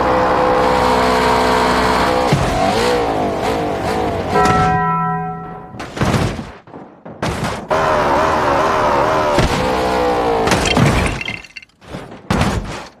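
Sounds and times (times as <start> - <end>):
car crash impacts crunching: 10.4 - 13.0.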